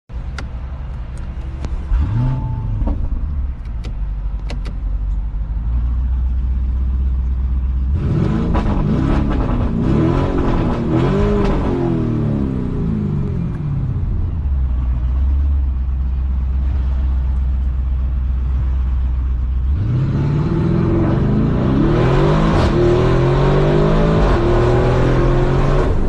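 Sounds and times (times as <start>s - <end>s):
engine idle rumble: 0.1s - 8.0s, 12.6s - 19.8s
car engine starting: 0.1s - 26.0s
engine revving: 1.6s - 2.9s, 7.8s - 13.9s, 19.6s - 26.0s.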